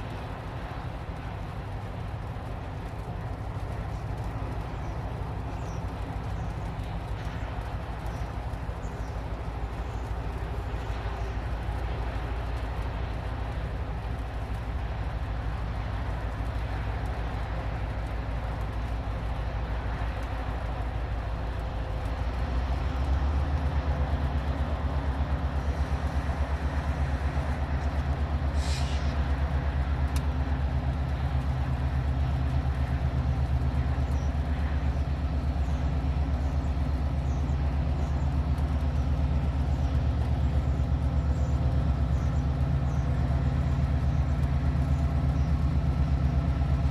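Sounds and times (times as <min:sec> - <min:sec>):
train rumbling: 0:00.0 - 0:46.9
short hiss: 0:28.5 - 0:29.3.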